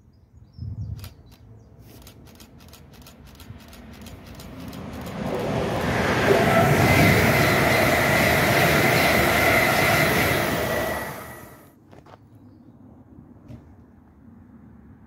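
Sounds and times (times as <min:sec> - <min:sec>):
train passing at speed: 0:02.0 - 0:11.8
high whine: 0:05.0 - 0:11.7.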